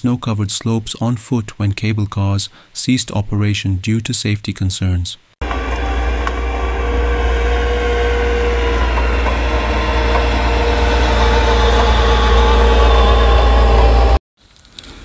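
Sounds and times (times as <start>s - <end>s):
constant hum: 5.4s - 14.2s
heavy engine rumbling: 5.4s - 14.2s.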